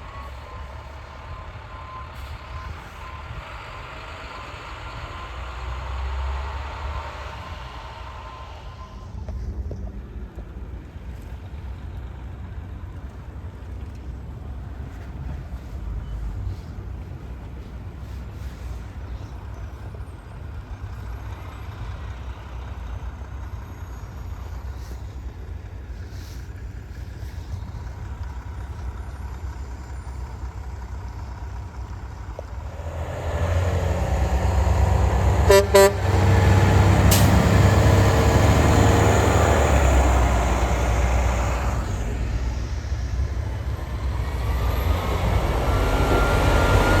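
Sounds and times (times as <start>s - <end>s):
truck engine rumbling: 0.0s - 47.0s
horn toot: 34.2s - 37.6s.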